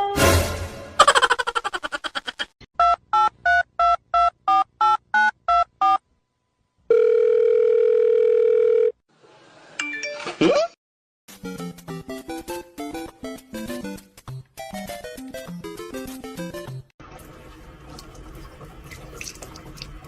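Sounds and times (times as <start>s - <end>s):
phone ringing tone: 6.9s - 9.0s.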